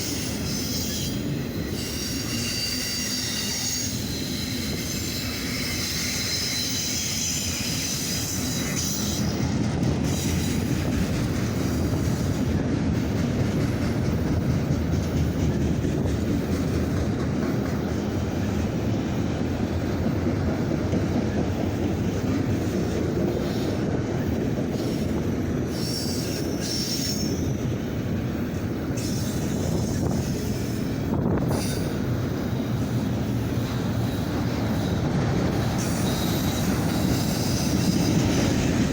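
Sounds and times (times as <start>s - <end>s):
train wheels rumbling on rails: 0.0s - 38.9s
high-pitched wheel squeal: 0.1s - 9.4s, 35.8s - 38.6s.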